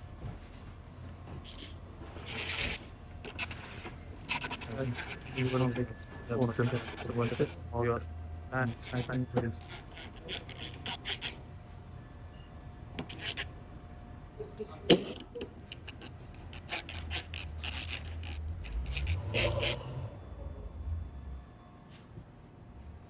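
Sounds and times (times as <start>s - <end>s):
tools and parts scraping and clicking: 1.1s - 7.6s, 8.7s - 11.4s, 13.0s - 13.5s, 14.9s - 19.8s.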